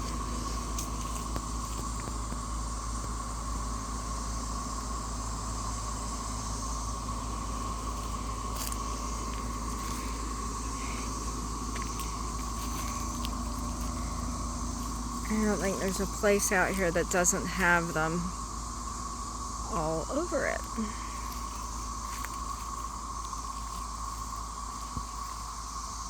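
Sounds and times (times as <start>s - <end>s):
cicadas droning: 0.0s - 26.0s.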